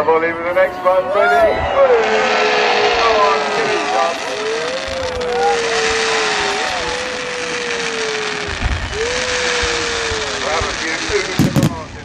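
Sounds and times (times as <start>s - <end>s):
crowd shouting and cheering: 0.0s - 11.9s
person yelling: 0.7s - 1.7s, 3.8s - 10.4s.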